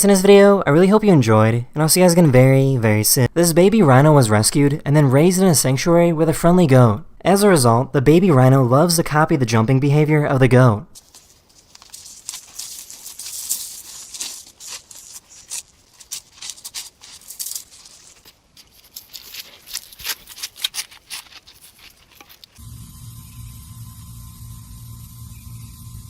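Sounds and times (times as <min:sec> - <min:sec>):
animals scuffing and rustling: 0:11.0 - 0:22.6
steady low hum: 0:22.6 - 0:26.0.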